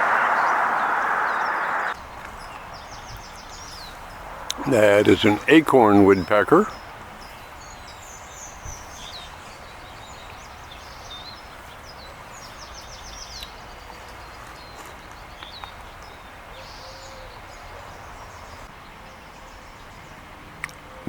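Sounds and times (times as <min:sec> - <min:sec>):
outdoor background hiss: 0:00.0 - 0:21.0
small birds chirping: 0:00.0 - 0:21.0.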